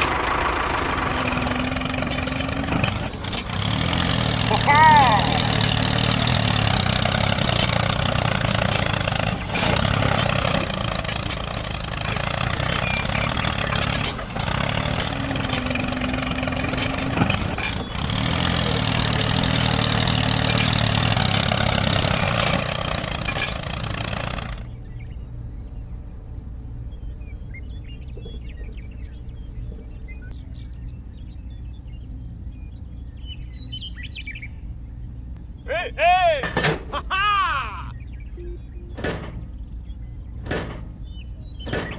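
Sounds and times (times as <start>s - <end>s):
mini tractor engine running: 0.0s - 24.7s.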